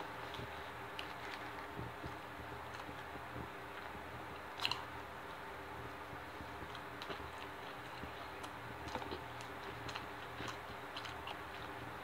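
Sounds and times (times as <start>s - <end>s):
person chewing: 6.6s - 12.0s.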